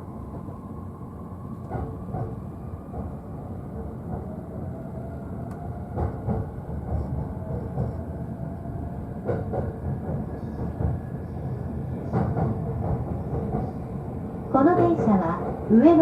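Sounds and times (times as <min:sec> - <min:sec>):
electric train rumble: 0:00.0 - 0:16.0
rail joints clicking: 0:05.4 - 0:08.0, 0:09.2 - 0:13.9.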